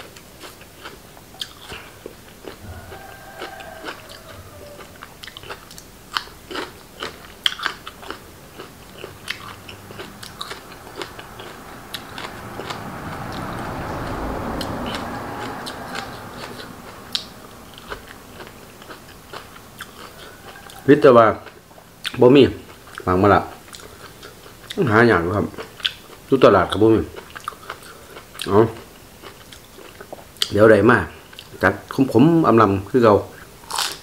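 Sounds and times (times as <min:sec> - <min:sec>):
man chewing crunchy food: 0:00.0 - 0:30.6, 0:31.2 - 0:31.6, 0:33.3 - 0:34.0
soft rushing sound: 0:09.4 - 0:19.7.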